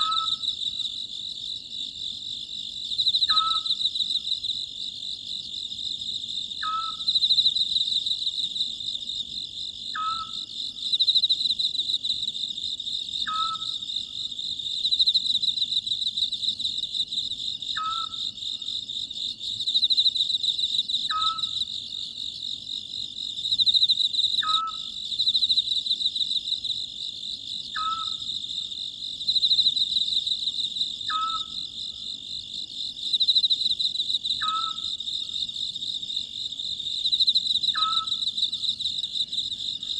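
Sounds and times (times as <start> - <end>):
owl calling: 0.0 - 0.4, 3.3 - 3.8, 6.6 - 7.1, 10.0 - 10.4, 13.2 - 13.7, 17.8 - 18.2, 21.1 - 21.6, 24.4 - 24.9, 27.8 - 28.2, 31.1 - 31.6, 34.4 - 34.9, 37.7 - 38.2
crickets chirping: 0.0 - 39.9.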